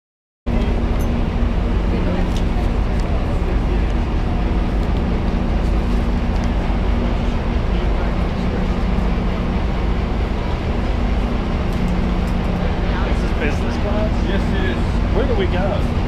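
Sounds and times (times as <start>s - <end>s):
train idling rumble and hum: 0.5s - 16.0s.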